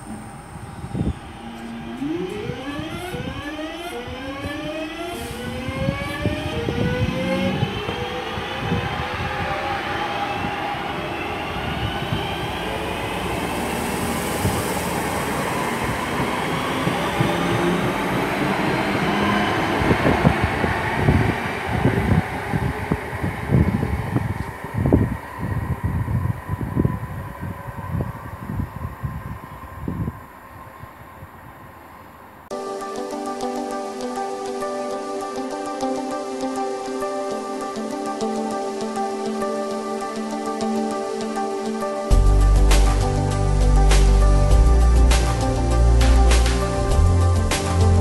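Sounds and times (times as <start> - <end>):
electric train motors whining: 0.0 - 31.0
train rushing along: 0.0 - 32.5.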